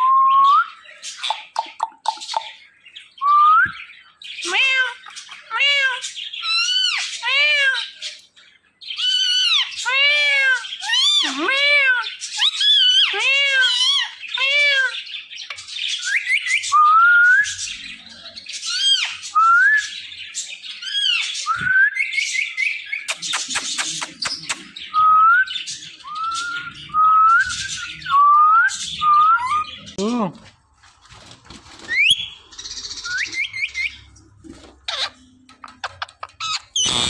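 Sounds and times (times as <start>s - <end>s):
parrot harsh calls: 4.4s - 8.0s, 8.9s - 15.0s, 35.9s - 37.0s.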